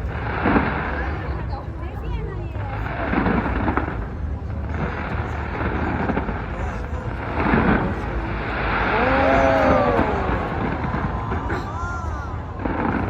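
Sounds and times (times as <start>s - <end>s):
crowd noise: 0.0s - 13.0s
fireworks booming and crackling: 2.7s - 13.0s.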